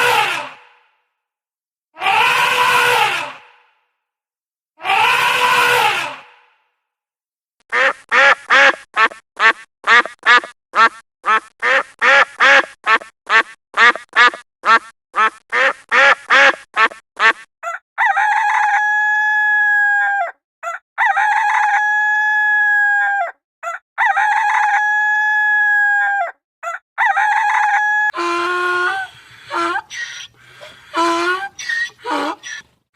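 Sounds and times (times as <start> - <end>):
chicken clucking: 28.9 - 32.7.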